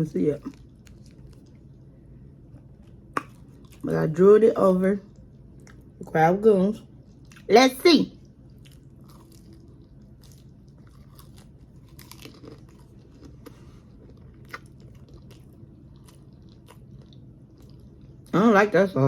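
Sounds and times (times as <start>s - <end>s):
chewing and biting food: 0.4s - 3.9s, 5.1s - 6.0s, 7.0s - 7.5s, 8.2s - 18.3s.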